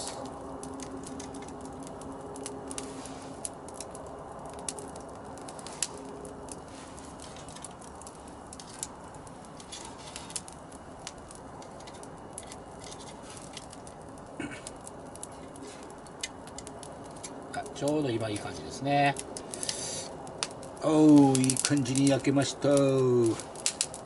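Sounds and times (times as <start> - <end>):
sharp crackles and pops: 0.0 - 24.0
squid sizzling in a skillet: 19.5 - 20.2.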